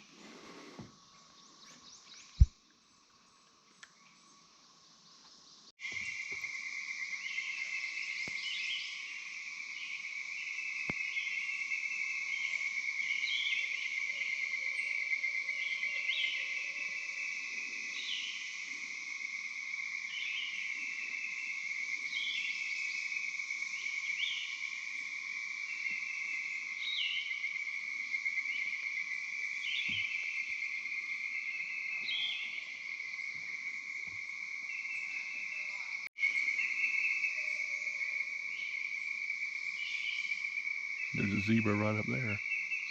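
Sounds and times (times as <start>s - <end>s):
insects buzzing drone: 4.1s - 42.9s
frog calls: 29.6s - 42.9s.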